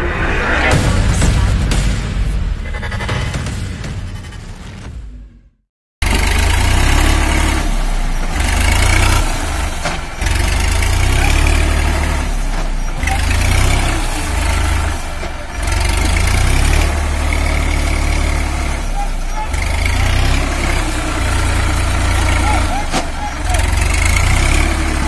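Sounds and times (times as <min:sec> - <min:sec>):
tractor diesel engine running hard: 0:06.0 - 0:25.0.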